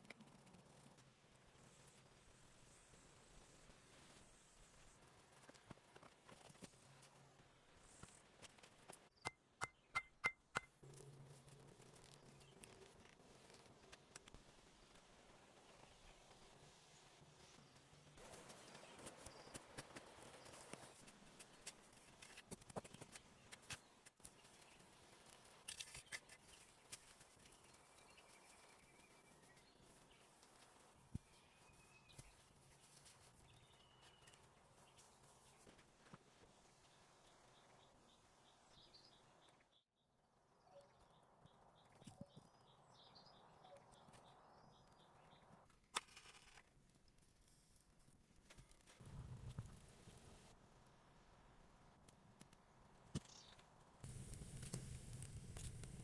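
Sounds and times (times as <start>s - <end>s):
small clicks and snaps: 10.9s - 14.5s, 52.0s - 56.0s
small birds chirping: 25.9s - 35.7s, 40.6s - 45.6s.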